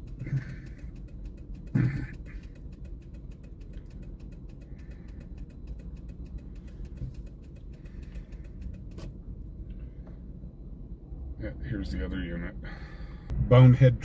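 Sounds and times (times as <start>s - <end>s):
fast even ticking: 0.0s - 8.9s
vehicle engine idling: 0.0s - 11.0s.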